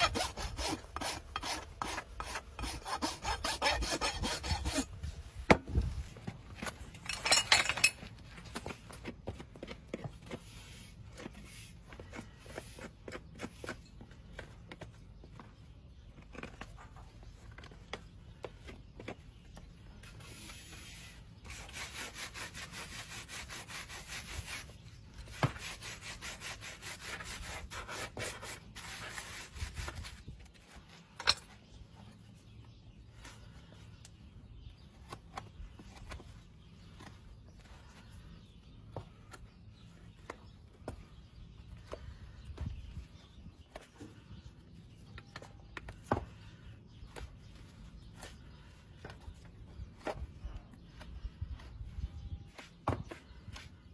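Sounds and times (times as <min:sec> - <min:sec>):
rasp filing a hoof: 0:00.0 - 0:05.3, 0:09.6 - 0:14.9, 0:20.0 - 0:30.3
scrapes: 0:00.0 - 0:14.4.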